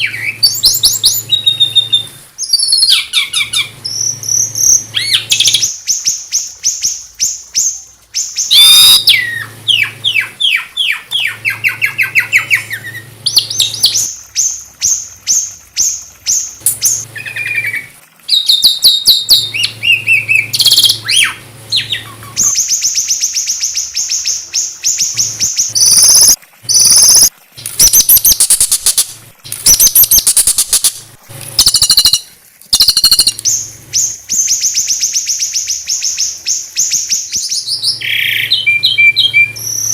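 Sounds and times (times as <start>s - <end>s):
small songbirds singing: 0.0s - 30.9s, 31.6s - 39.9s.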